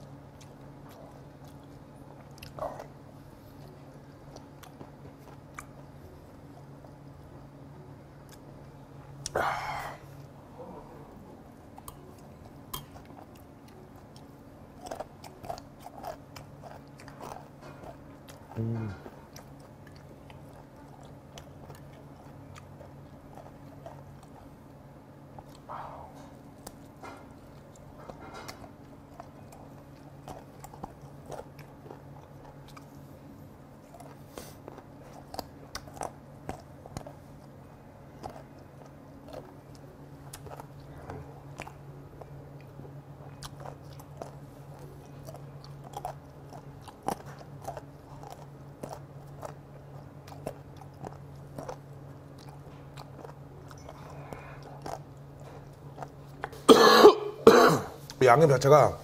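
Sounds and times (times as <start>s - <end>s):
crunchy chewing: 0.0s - 56.7s
steady low hum: 0.0s - 59.0s.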